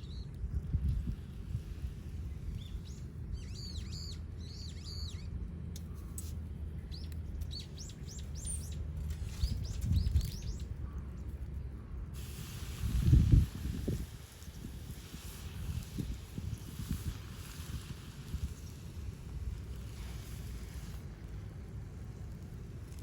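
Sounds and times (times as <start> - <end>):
small birds chirping: 0.0 - 1.1, 2.0 - 11.8.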